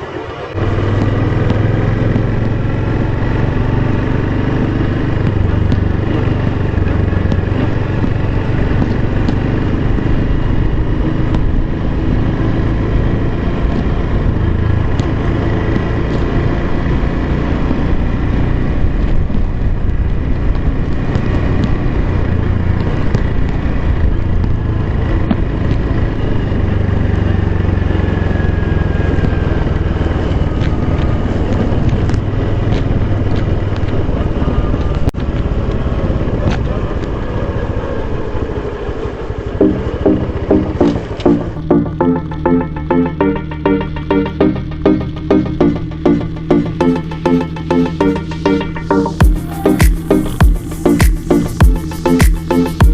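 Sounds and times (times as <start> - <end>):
small motorcycle engine running: 0.0 - 52.9
wind noise on microphone: 17.6 - 26.7.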